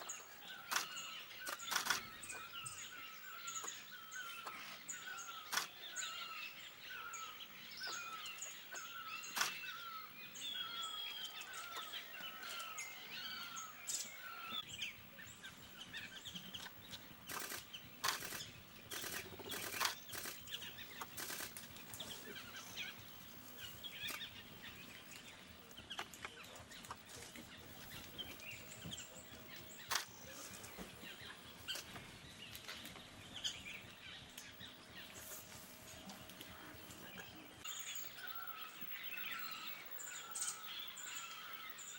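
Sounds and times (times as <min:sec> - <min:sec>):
birds calling: 0:00.0 - 0:41.9.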